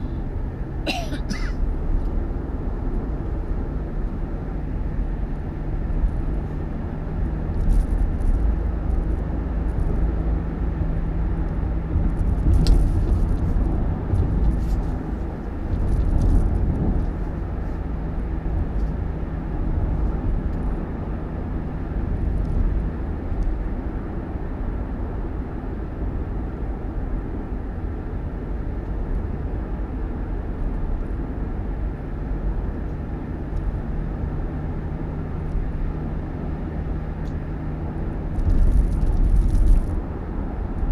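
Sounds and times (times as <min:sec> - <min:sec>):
road rumble: 0:00.0 - 0:40.9
vehicle engine hum: 0:00.0 - 0:40.9.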